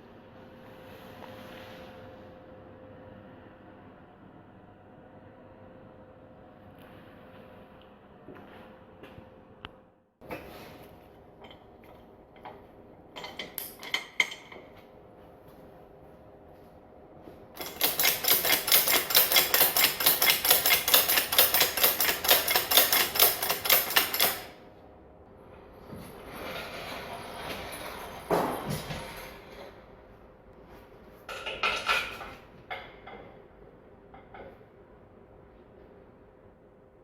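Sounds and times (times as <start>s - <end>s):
hand tool clicking rapidly: 17.6s - 24.5s.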